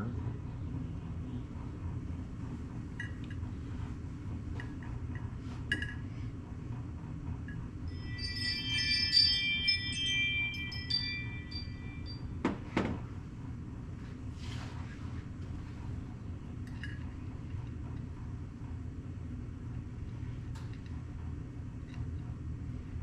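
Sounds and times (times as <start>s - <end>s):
steady low hum: 0.0s - 23.0s
light metallic clinks: 7.9s - 12.4s
chime-like ringing tones: 7.9s - 12.7s.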